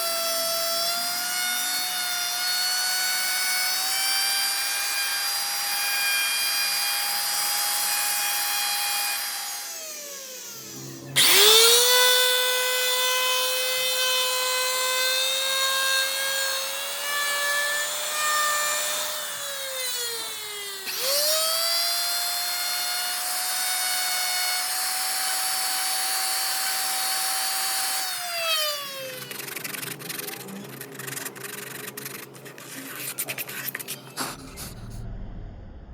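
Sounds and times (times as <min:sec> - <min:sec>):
wood router whining: 0:00.0 - 0:35.0
low hum: 0:29.2 - 0:35.9.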